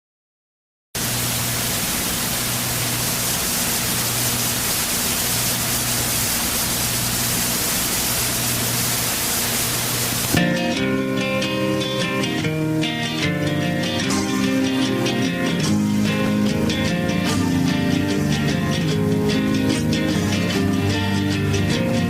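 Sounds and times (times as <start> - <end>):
heavy rain hissing: 1.0 - 22.0
plucked acoustic guitar: 10.3 - 22.0.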